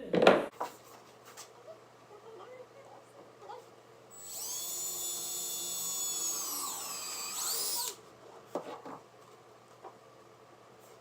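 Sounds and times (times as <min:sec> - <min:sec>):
electric drill boring into wood: 0:04.1 - 0:08.0.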